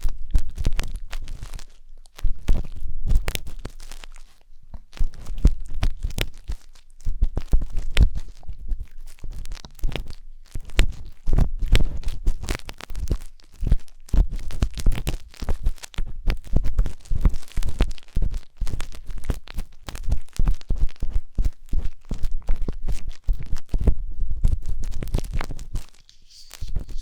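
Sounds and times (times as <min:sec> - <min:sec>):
skewer scraping in microphone ear: 0:25.8 - 0:27.0.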